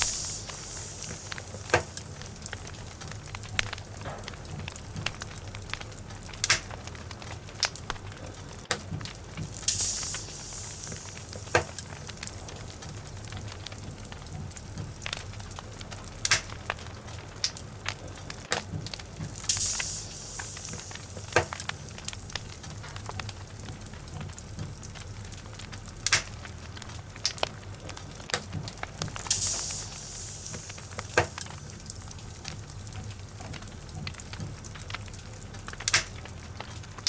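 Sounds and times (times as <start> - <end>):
high hissing: 0.0 - 3.7, 9.4 - 13.5, 19.1 - 23.1, 29.0 - 32.9
fire steady low rush: 0.0 - 37.0
fireplace logs crackling: 0.0 - 37.0.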